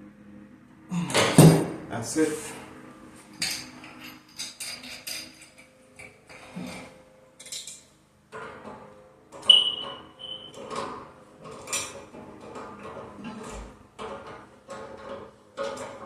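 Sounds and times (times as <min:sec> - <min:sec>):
metal clinks and knocks on pipe: 0:03.4 - 0:06.2, 0:07.4 - 0:13.0.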